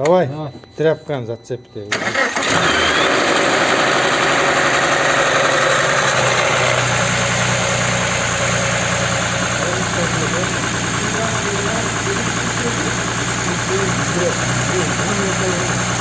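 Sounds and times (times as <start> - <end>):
car engine fast idle: 1.9 - 16.0.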